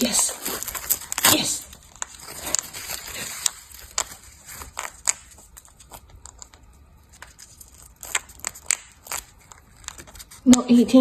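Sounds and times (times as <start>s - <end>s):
paper ripping: 0.0s - 10.6s
paper crackling and crumpling: 0.0s - 10.9s.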